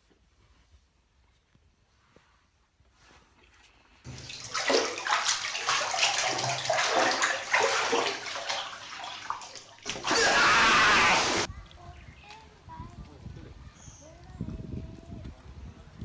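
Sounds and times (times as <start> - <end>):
water splashing and sloshing: 4.1 - 11.5.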